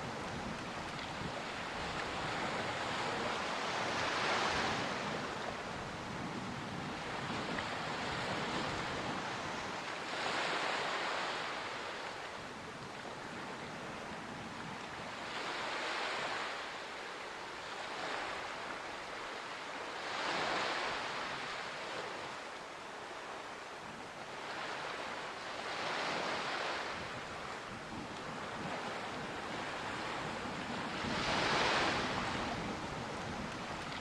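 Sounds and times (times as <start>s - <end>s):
large waves surging in: 0.0s - 34.0s
ocean waves washing in: 0.0s - 34.0s.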